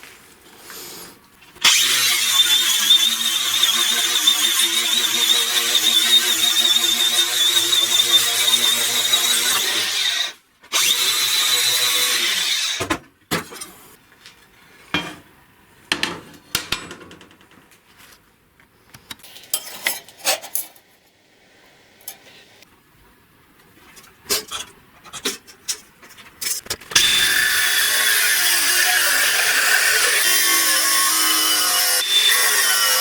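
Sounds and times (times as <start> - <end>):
power tool whining: 1.6 - 12.8
clicks and knocks: 15.9 - 17.7.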